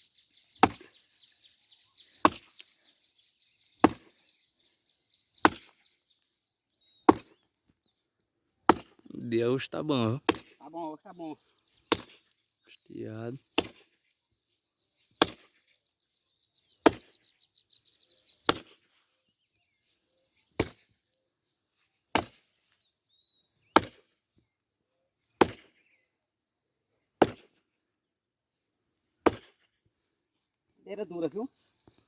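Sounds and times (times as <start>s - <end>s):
axe chopping hard wood: 0.6s - 0.9s, 2.2s - 2.6s, 3.8s - 4.1s, 5.4s - 5.8s, 7.1s - 7.4s, 8.7s - 9.0s, 10.3s - 10.6s, 11.9s - 12.2s, 13.6s - 13.8s, 15.2s - 15.6s, 16.8s - 17.1s, 18.5s - 18.8s, 20.6s - 20.8s, 22.1s - 22.5s, 23.8s - 24.1s, 25.4s - 25.7s, 27.2s - 27.6s, 29.2s - 29.6s.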